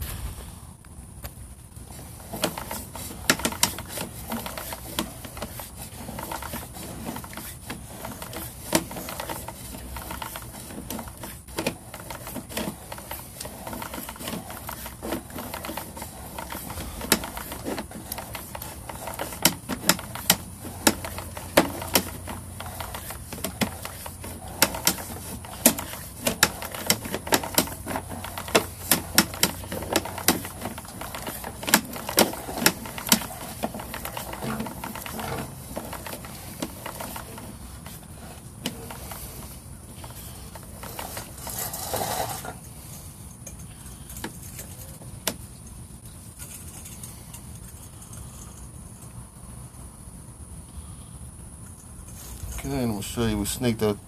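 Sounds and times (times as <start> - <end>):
cable reel clicking and rattling: 1.9 - 42.6.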